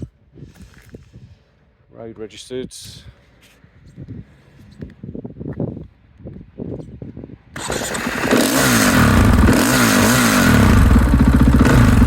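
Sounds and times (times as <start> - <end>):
motorcycle engine revving: 7.6 - 12.0.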